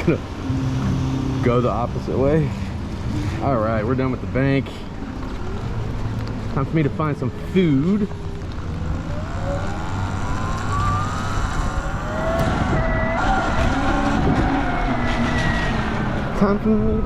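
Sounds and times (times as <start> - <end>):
tyres rumbling on wet road: 0.0 - 17.0
electric motorbike motor whining: 7.8 - 14.4.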